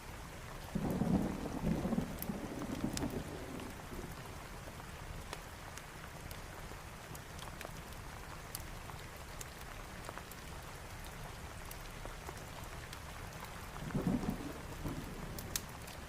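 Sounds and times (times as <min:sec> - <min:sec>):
steady rain: 0:00.0 - 0:16.0
low thunder rumble: 0:00.7 - 0:04.3, 0:13.8 - 0:15.8.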